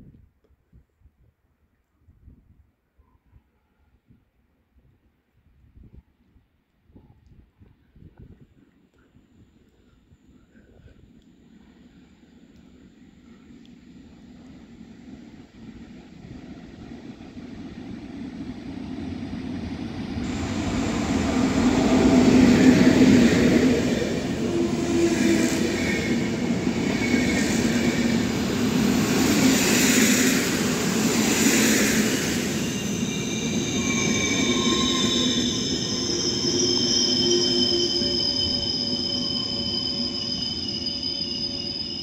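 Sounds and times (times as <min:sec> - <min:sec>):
passenger train rumbling past: 0:12.8 - 0:42.0
high squealing from train: 0:19.8 - 0:42.0.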